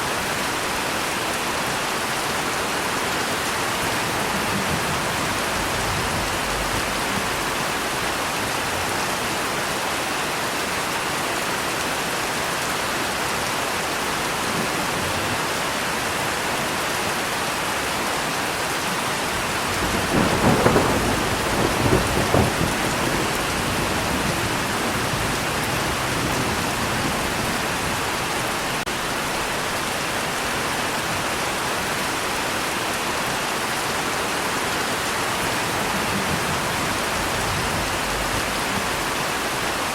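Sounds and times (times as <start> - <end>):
heavy rain falling: 0.0 - 39.9
thunder rumbling: 3.4 - 9.0, 19.3 - 29.8, 35.2 - 39.9.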